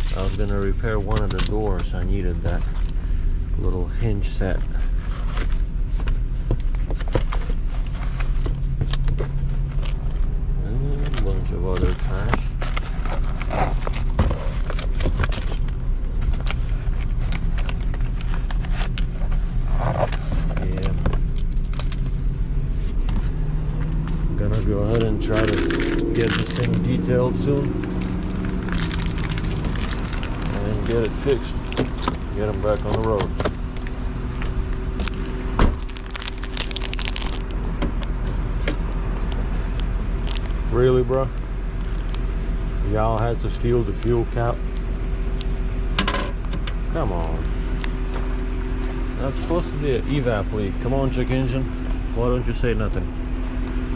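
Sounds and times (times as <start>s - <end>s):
clicks and rattles of car parts: 0.0s - 2.8s, 29.7s - 33.6s, 45.9s - 46.8s
car engine idling: 0.0s - 53.9s.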